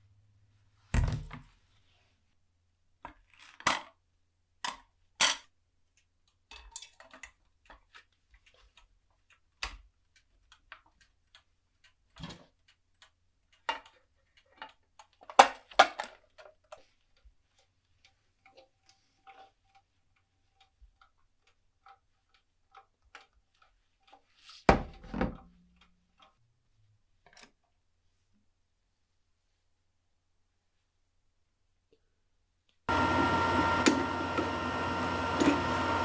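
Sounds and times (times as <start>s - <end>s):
small hard parts clicking: 4.6s - 24.7s.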